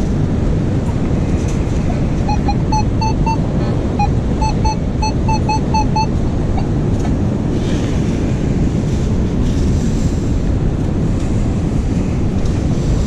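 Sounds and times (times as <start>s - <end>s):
wind buffeting microphone: 0.0s - 13.0s
metal detector short beeps: 2.2s - 6.7s
surf on beach: 4.0s - 13.0s.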